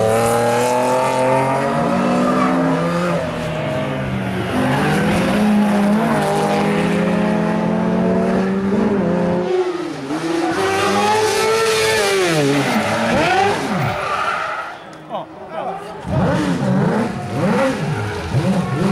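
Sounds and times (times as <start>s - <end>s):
rally car engine revving: 0.0s - 14.8s, 15.7s - 18.9s.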